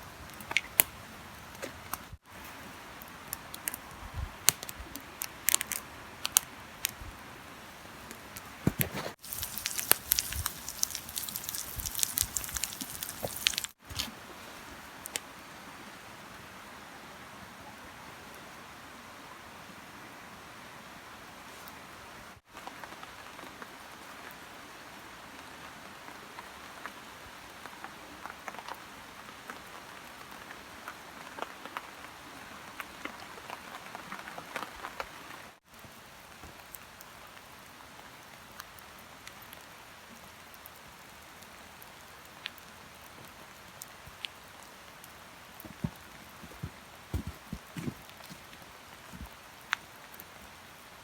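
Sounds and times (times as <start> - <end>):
steady rain falling: 0.0 - 51.0
close raindrops ticking: 2.8 - 7.1, 9.2 - 13.8.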